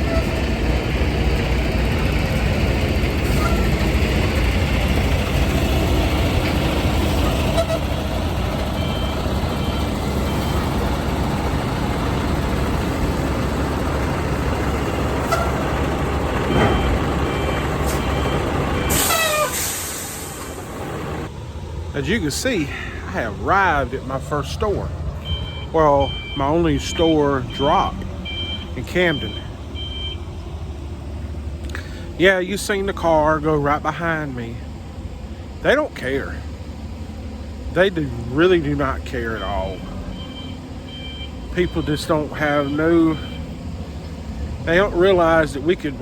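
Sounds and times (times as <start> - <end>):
diesel truck engine rumbling: 0.0 - 46.0
air brake hiss: 18.9 - 20.6
two-pitch beeps: 25.2 - 27.6.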